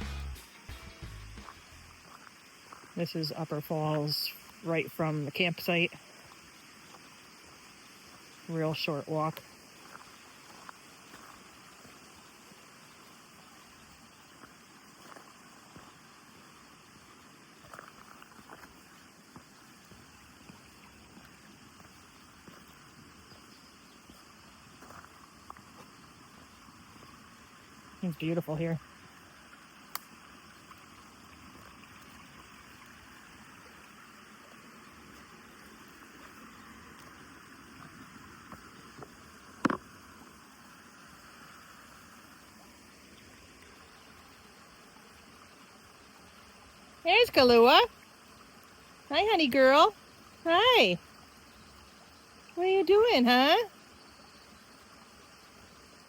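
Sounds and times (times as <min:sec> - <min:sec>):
small waterfall rushing: 0:00.0 - 0:56.0
faint ticks: 0:29.4 - 0:32.5.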